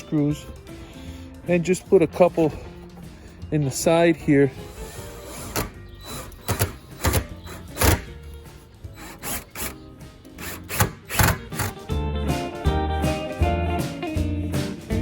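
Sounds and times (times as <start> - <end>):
guitar background music: 0.0 - 15.0
knocks and scraping of screws: 1.6 - 11.8.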